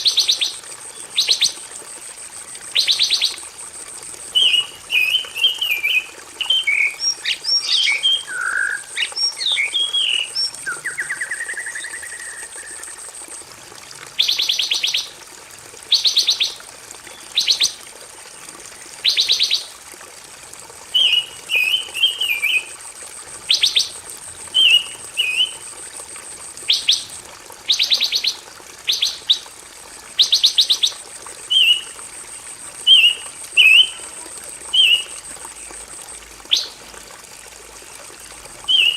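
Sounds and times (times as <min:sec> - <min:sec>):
songbird singing: 0:04.4 - 0:13.0, 0:21.0 - 0:22.7, 0:23.5 - 0:25.6, 0:26.7 - 0:27.1, 0:27.7 - 0:29.5, 0:30.2 - 0:31.9, 0:32.8 - 0:34.0, 0:34.7 - 0:35.8, 0:36.5 - 0:36.8, 0:38.7 - 0:38.9.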